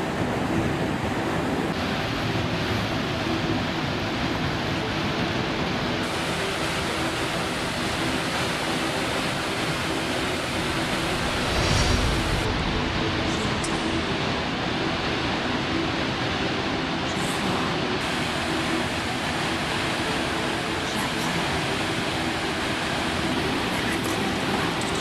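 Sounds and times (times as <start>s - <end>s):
floodwater rushing: 6.0s - 14.8s.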